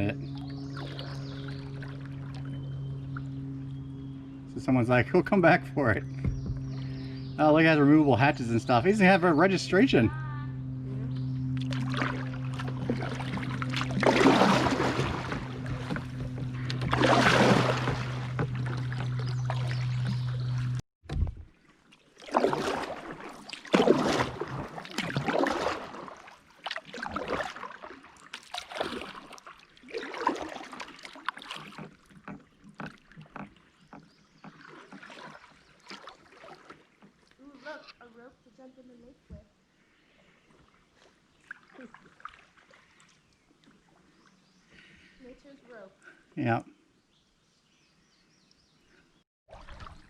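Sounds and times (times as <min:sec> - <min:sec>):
low hum: 0:00.0 - 0:21.6
paddle swishing and splashing water: 0:11.4 - 0:37.7, 0:39.8 - 0:44.4, 0:49.5 - 0:50.0.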